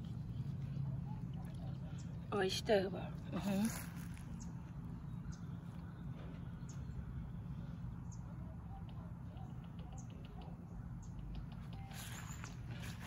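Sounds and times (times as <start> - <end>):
low steady rumble: 0.0 - 13.0
bird ticking calls: 4.3 - 7.4, 8.0 - 11.9.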